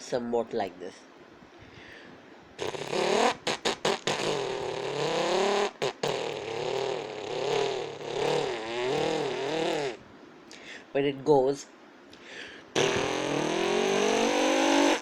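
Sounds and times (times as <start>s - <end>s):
vocal engine imitation: 2.6s - 10.0s, 12.8s - 15.0s.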